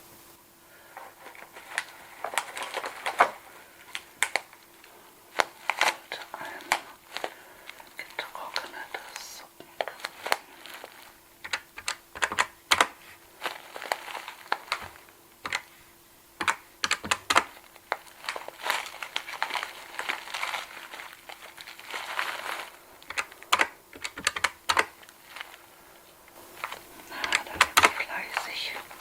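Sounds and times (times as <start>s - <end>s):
soft rustling: 0.0s - 29.0s
cash register keys clicking: 16.4s - 17.5s, 23.1s - 25.0s.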